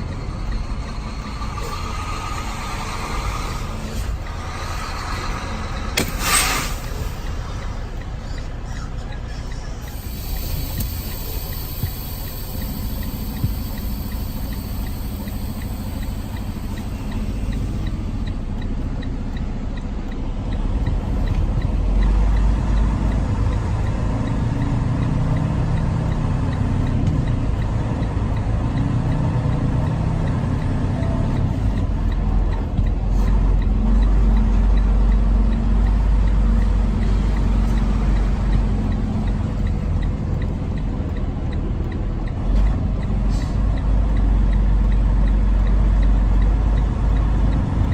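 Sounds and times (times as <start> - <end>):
diesel engine from inside cab: 0.0 - 47.9.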